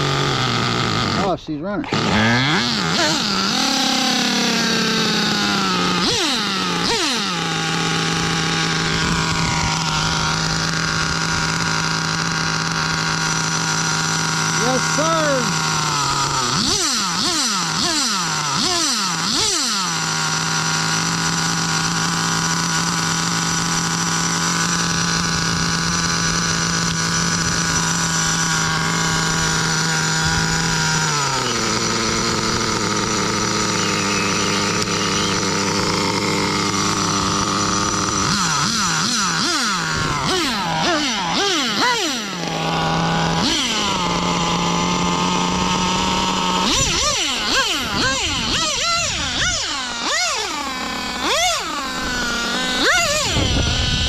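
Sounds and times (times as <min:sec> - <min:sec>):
model engine running high-pitched: 0:00.0 - 0:54.0.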